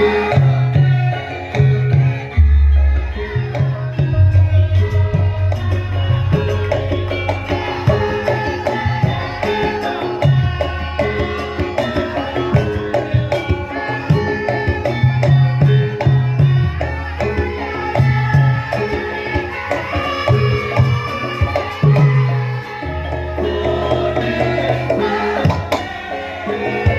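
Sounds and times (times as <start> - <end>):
ringing bronze percussion tones: 0.0 - 26.9
hand drum strokes: 1.9 - 17.0.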